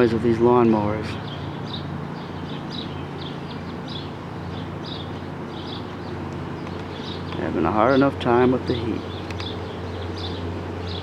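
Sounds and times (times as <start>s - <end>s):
lawnmower engines droning: 0.0s - 11.0s
bird chirps: 1.2s - 7.5s, 8.7s - 11.0s.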